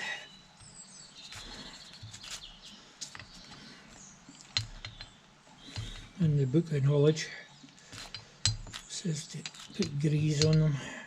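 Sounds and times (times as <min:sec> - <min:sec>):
small metal parts clicking: 0:04.4 - 0:06.2, 0:07.9 - 0:10.8.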